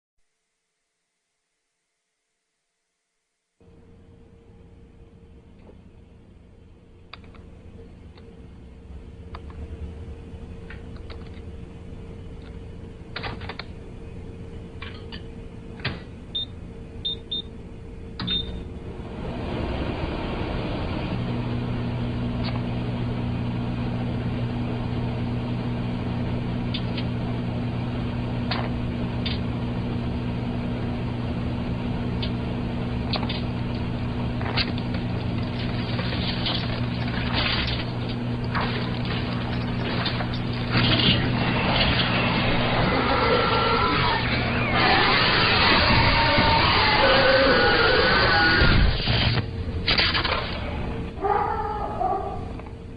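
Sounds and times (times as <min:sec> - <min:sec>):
microwave oven humming: 0:03.6 - 0:52.9
clicks: 0:07.1 - 0:07.5, 0:32.2 - 0:32.4
microwave keypad beeps: 0:16.3 - 0:17.5, 0:18.2 - 0:18.6.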